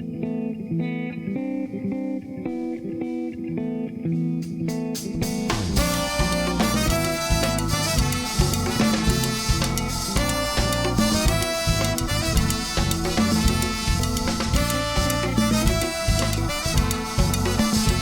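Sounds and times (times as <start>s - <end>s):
guitar: 0.0s - 18.0s
live jazzy latin band: 5.2s - 18.0s
horn section: 5.8s - 18.0s.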